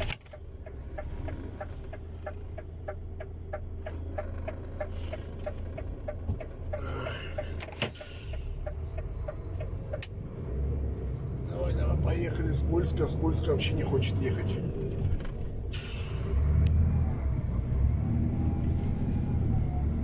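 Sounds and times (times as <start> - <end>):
truck engine rumble: 0.0 - 20.0.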